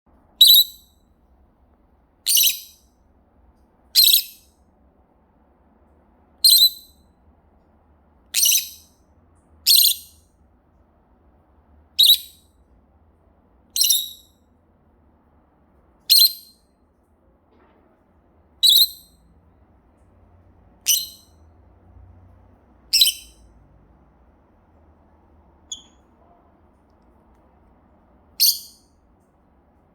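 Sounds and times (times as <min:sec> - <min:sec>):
parrot calling: 0:00.4 - 0:00.9, 0:02.3 - 0:02.8, 0:04.0 - 0:04.5, 0:06.4 - 0:06.9, 0:08.3 - 0:08.8, 0:09.7 - 0:10.2, 0:12.0 - 0:12.4, 0:13.8 - 0:14.3, 0:16.1 - 0:16.5, 0:18.6 - 0:19.1, 0:20.8 - 0:21.3, 0:22.9 - 0:23.4, 0:25.7 - 0:26.1, 0:28.4 - 0:28.8.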